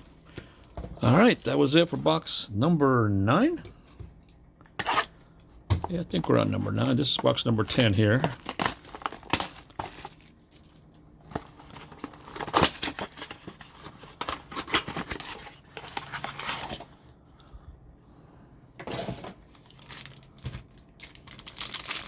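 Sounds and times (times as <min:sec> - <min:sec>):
plastic wrapping crinkling and tearing: 0:06.1 - 0:17.0, 0:19.4 - 0:22.0.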